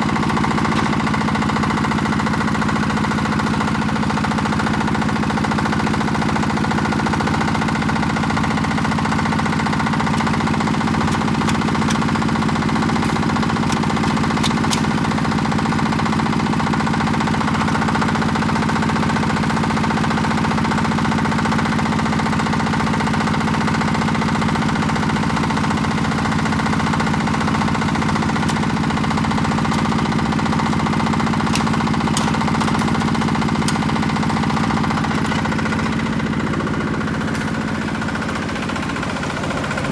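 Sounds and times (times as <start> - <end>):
diesel engine running steadily: 0.0 - 39.9.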